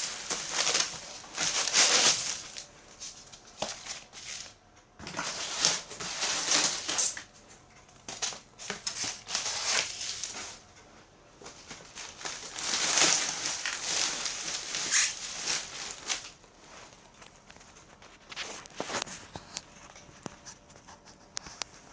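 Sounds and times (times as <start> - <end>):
packaging rustling and crinkling: 0.0 - 7.4, 8.0 - 10.7, 11.4 - 21.9.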